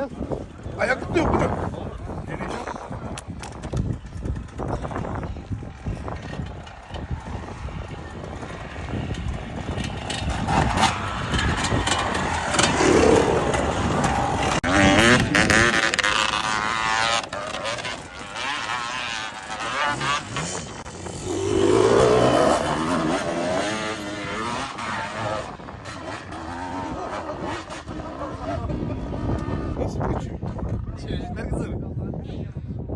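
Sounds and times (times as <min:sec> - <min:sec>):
motorcycle engine revving: 0:05.8 - 0:30.0.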